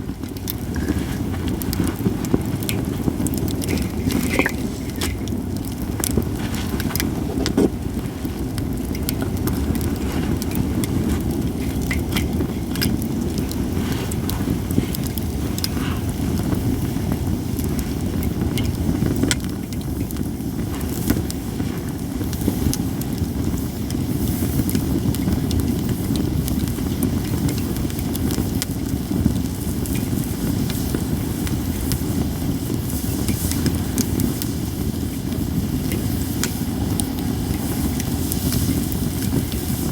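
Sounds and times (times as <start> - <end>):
steady low rumble: 0.0 - 39.9
wood fire crackling and popping: 0.0 - 39.9.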